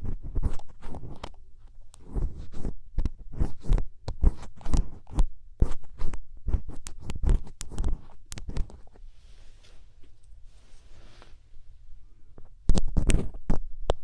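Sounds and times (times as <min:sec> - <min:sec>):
soft rustling hiss: 0:06.7 - 0:12.2.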